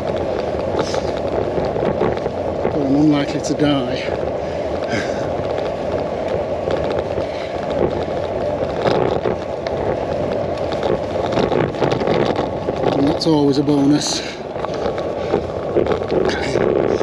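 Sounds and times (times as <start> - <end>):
bicycle tyres rumbling on rough track: 0.0 - 17.0
bike rattling and knocking: 0.0 - 17.0.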